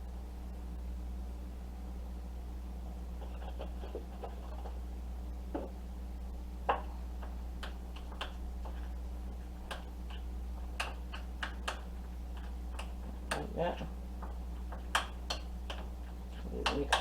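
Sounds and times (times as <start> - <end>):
low electrical hum: 0.0 - 17.0
spoon tapping mixing bowl: 9.6 - 17.0.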